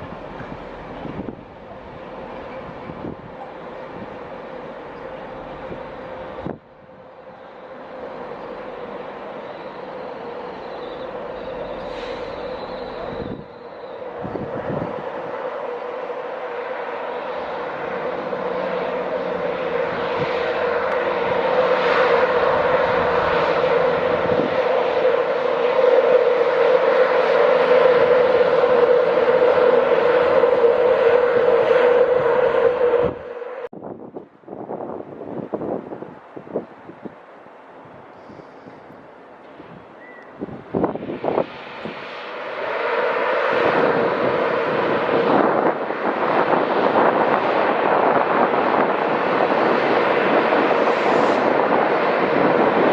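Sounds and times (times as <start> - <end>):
train passing with whine: 0.0 - 52.9.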